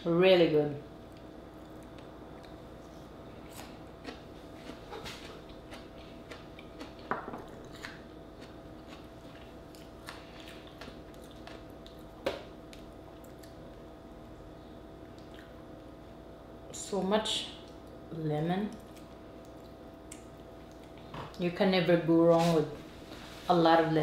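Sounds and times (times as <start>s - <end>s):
person chewing food: 1.1s - 14.4s, 15.0s - 15.6s, 18.8s - 21.2s.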